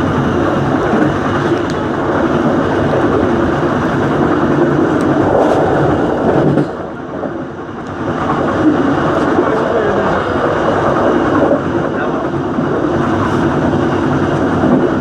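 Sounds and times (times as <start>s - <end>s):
passenger train rumbling on rails: 0.0s - 15.0s.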